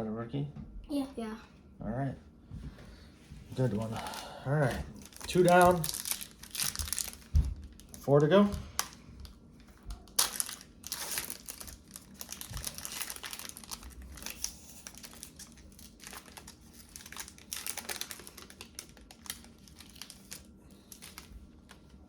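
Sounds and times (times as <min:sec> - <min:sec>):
wrapper crinkling and tearing: 0:03.6 - 0:22.0.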